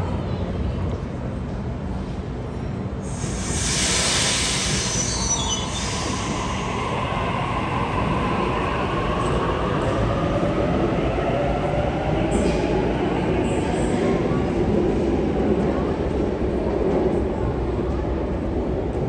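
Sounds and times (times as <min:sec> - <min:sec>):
train rumble: 0:00.0 - 0:19.0
train wheels squealing: 0:03.1 - 0:09.3.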